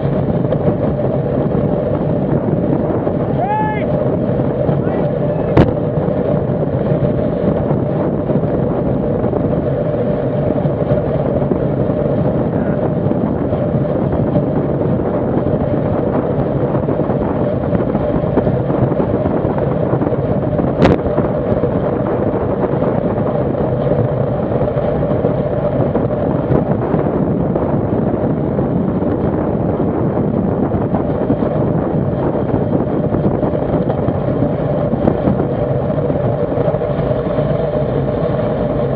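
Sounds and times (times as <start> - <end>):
bicycle tyre noise: 0.0 - 38.9
steady hum: 0.0 - 38.9
wind rush: 0.0 - 38.9.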